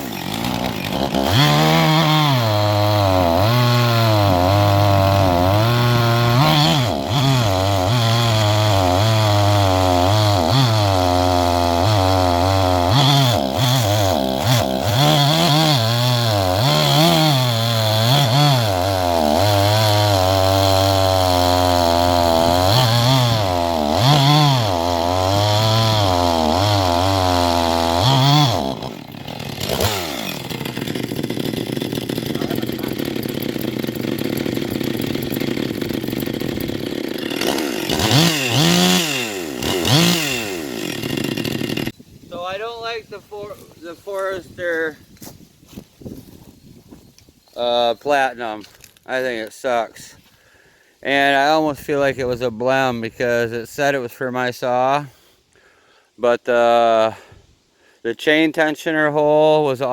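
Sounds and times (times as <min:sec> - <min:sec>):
chainsaw cutting log: 0:00.0 - 0:42.1.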